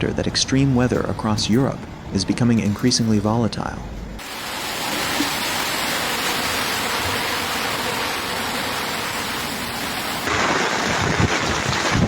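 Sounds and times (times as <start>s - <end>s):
rushing storm water: 4.2s - 12.0s.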